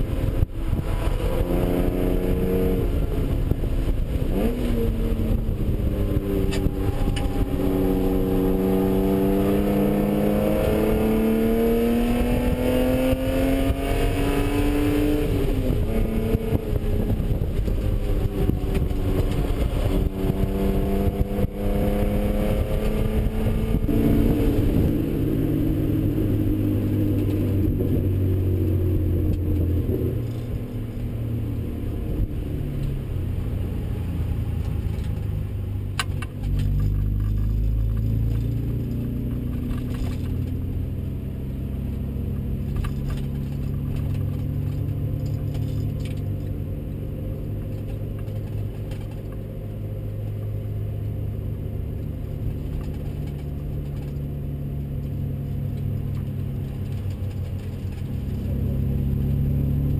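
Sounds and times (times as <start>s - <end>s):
car engine revving: 0.0s - 59.9s
clicks and rattles: 42.7s - 46.6s, 47.6s - 49.4s, 52.4s - 54.3s.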